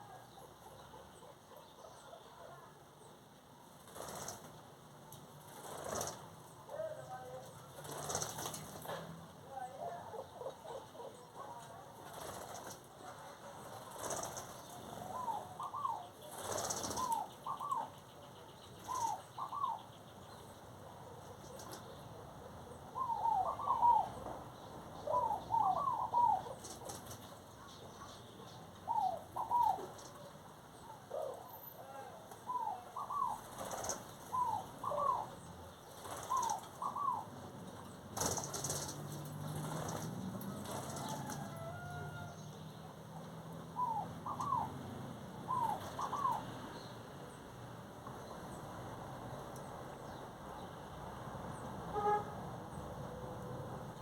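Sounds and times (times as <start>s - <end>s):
bird calling: 13.1s - 37.4s, 43.7s - 46.9s, 51.9s - 53.8s.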